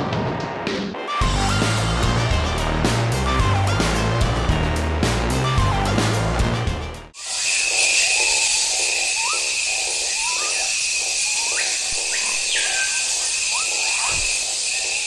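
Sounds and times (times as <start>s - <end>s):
high-pitched insect drone: 7.2s - 15.0s
upward-sliding animal calls: 7.2s - 15.0s.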